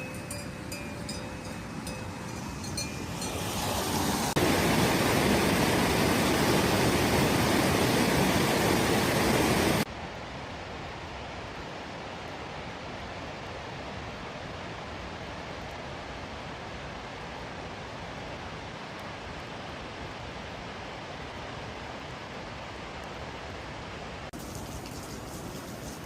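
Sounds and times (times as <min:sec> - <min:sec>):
rain falling: 0:00.0 - 0:09.9, 0:17.1 - 0:26.0.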